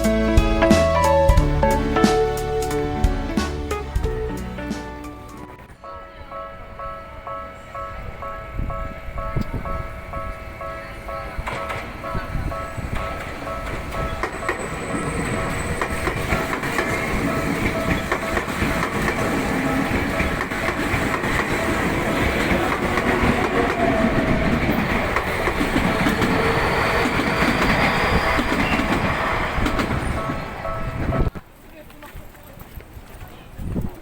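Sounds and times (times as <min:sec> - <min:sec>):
wheels rumbling on rail: 0:05.2 - 0:31.4.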